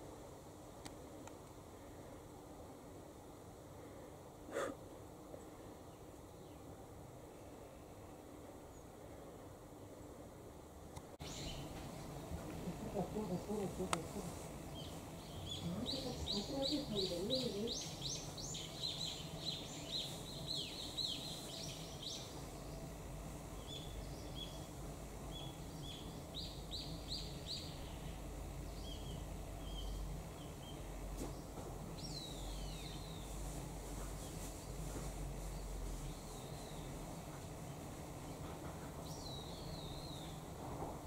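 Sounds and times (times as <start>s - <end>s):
small birds chirping: 11.2s - 40.5s.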